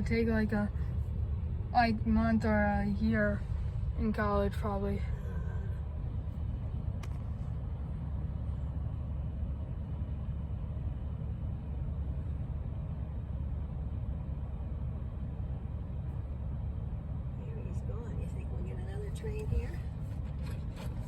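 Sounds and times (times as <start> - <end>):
car cabin rumble: 17.4 - 21.0.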